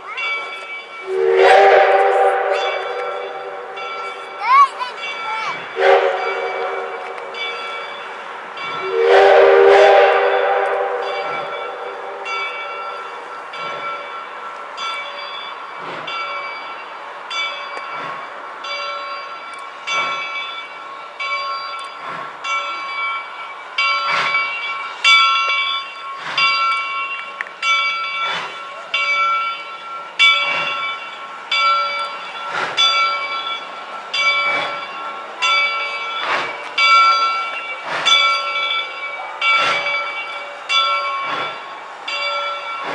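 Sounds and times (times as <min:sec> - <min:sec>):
bell ringing: 0:00.0 - 0:09.3, 0:10.3 - 0:42.9
train horn: 0:01.0 - 0:03.9, 0:05.8 - 0:07.4, 0:08.8 - 0:12.5.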